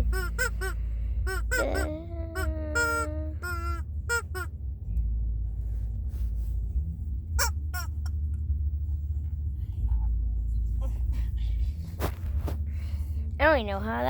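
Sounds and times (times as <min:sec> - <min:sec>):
squeaky toy squeaks: 0:00.0 - 0:04.5, 0:07.4 - 0:08.1.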